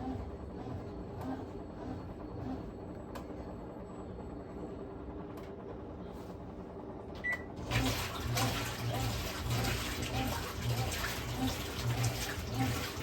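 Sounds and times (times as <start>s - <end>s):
washing machine hum: 0.0s - 13.0s
water rushing and sloshing: 7.6s - 13.0s.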